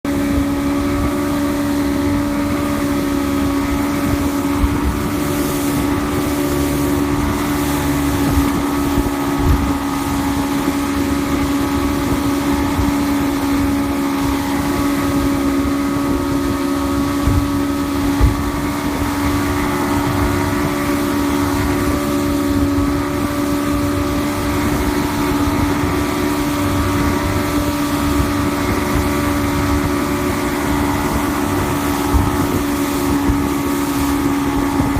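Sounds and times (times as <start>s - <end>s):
outboard motor running: 0.0s - 34.9s
wind on microphone: 0.1s - 34.9s
low thumps: 17.1s - 23.0s.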